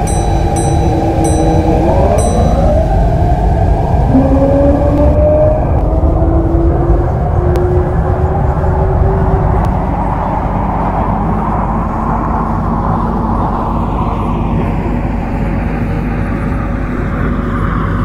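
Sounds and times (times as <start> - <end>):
electric train motor whine: 0.0 - 10.3
wheels rumbling on rails: 0.0 - 18.0.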